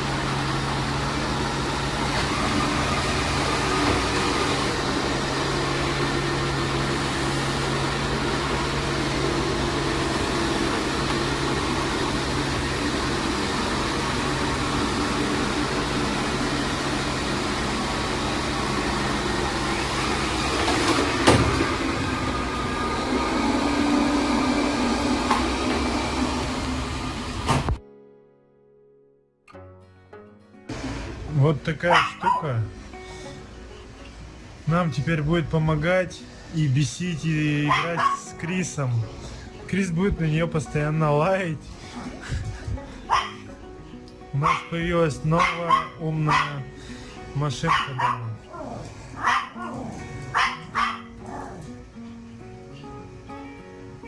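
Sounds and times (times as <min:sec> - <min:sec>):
robot vacuum motor hum: 0:00.0 - 0:27.8.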